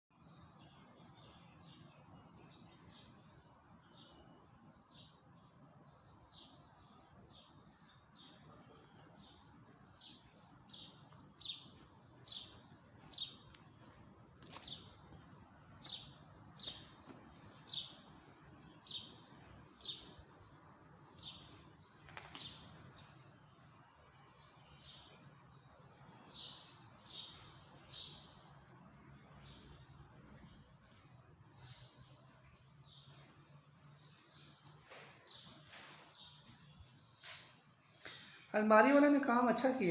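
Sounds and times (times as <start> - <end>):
small bird chirping: 0.4 - 28.6.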